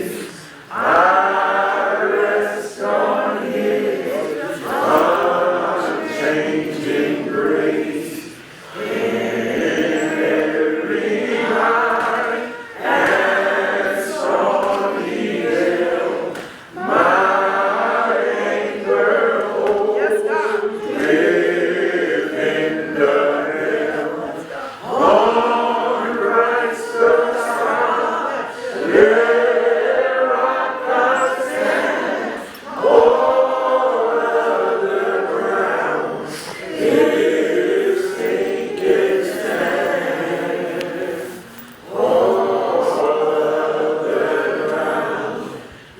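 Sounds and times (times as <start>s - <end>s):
choir singing unaccompanied: 0.0s - 45.9s.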